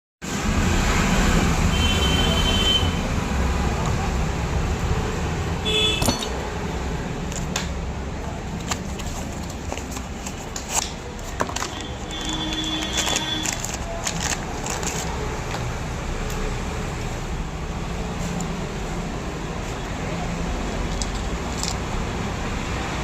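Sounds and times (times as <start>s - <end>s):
road traffic rumble: 0.2s - 23.0s
car horn toots: 5.6s - 6.2s, 11.7s - 13.6s.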